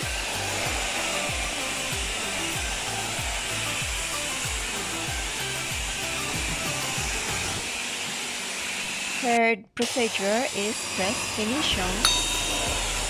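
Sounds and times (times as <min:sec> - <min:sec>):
background music with beat: 0:00.0 - 0:07.7, 0:11.8 - 0:13.0
high-pressure water spray hissing: 0:00.0 - 0:09.3, 0:09.9 - 0:13.0.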